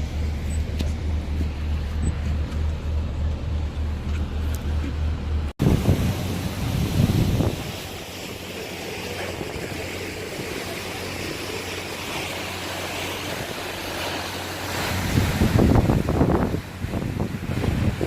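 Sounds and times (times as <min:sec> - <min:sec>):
boat engine droning: 0:00.0 - 0:18.0
wind hiss on microphone: 0:05.6 - 0:18.0.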